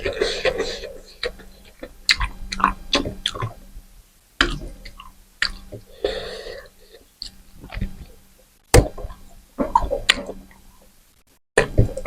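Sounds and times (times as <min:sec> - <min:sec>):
wet chewing: 0:00.0 - 0:03.6, 0:04.4 - 0:08.2.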